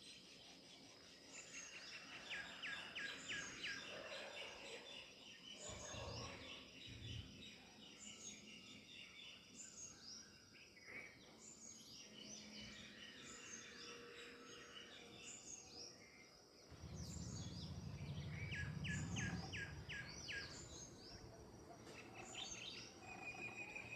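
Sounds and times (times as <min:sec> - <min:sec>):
songbirds chirping: 0:00.0 - 0:23.9
low rumble: 0:16.7 - 0:21.8.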